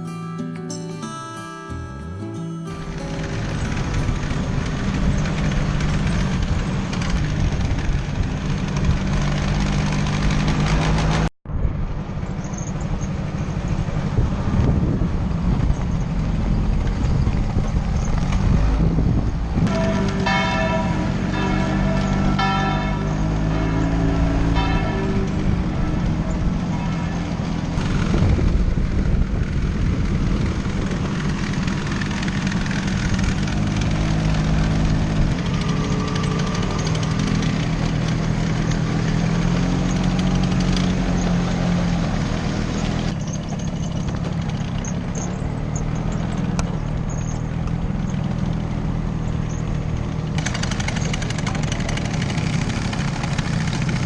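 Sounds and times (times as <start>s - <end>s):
small scooter engine running: 2.8s - 11.3s, 24.6s - 54.0s
wind noise: 3.0s - 41.4s.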